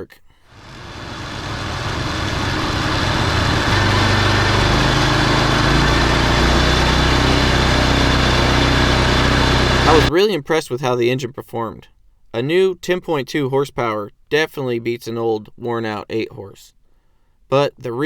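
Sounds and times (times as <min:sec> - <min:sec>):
small gasoline engine running: 0:00.6 - 0:10.1.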